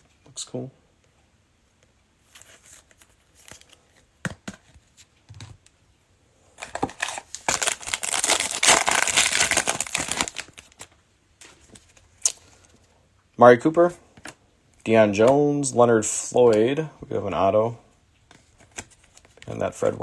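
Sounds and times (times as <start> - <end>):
foil wrapper crinkling and tearing: 6.6 - 10.9.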